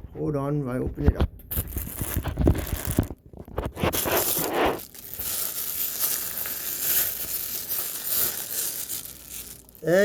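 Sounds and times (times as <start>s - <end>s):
clicks and scrapes: 1.5s - 5.0s
package tearing and crinkling: 1.5s - 10.0s.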